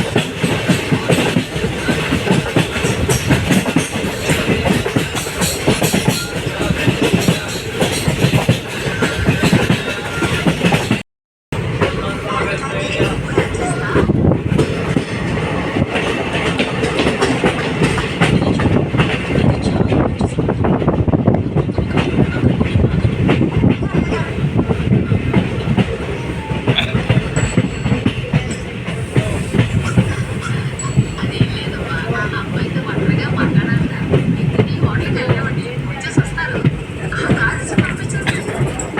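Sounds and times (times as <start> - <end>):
train wheels clattering over rail joints: 0.0 - 11.0, 13.0 - 32.4.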